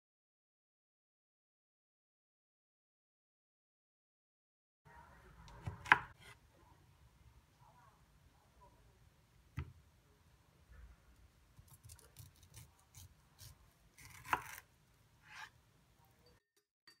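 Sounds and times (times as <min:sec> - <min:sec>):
knife cutting fruit: 0:05.5 - 0:06.4, 0:11.6 - 0:15.6.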